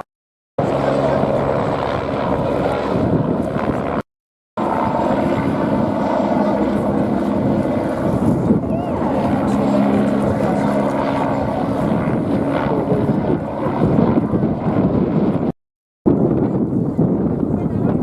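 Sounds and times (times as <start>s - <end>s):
propeller aircraft engine drone: 0.6s - 4.0s, 4.6s - 15.5s.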